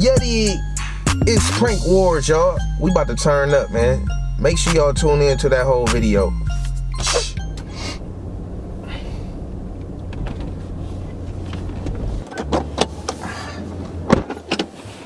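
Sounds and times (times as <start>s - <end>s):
car engine and road hum: 0.0s - 15.0s
car door thump: 7.0s - 14.7s
car door clicks and knocks: 9.8s - 10.7s, 11.3s - 13.2s, 14.0s - 14.7s.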